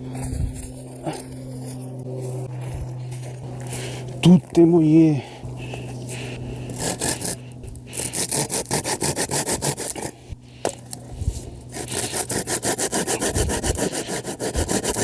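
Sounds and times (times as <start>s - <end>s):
hand saw cutting wood: 5.6s - 15.0s.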